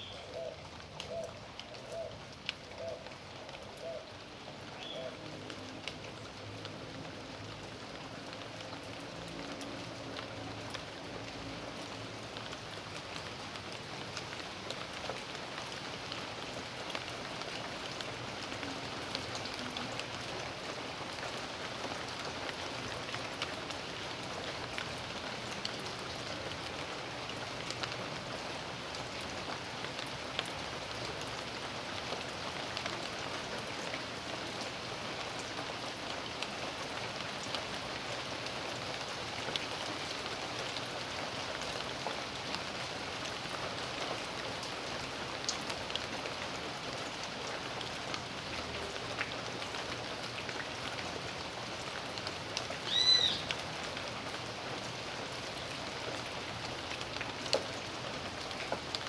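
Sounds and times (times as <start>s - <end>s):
raindrops ticking: 0.5s - 59.0s.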